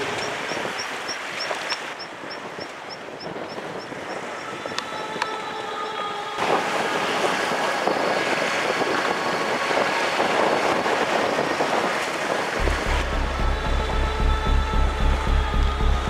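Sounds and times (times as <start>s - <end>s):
strong wind rushing: 0.0s - 16.0s
wind buffeting microphone: 0.0s - 16.0s
pulsing bass beat: 12.6s - 16.0s.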